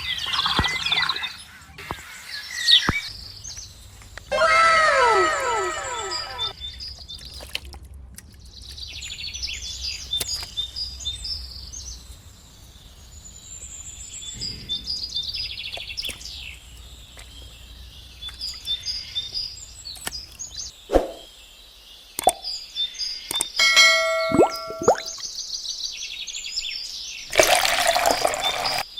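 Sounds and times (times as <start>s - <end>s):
small birds chirping and trilling: 0.0s - 28.9s
faint low hum: 3.0s - 20.7s.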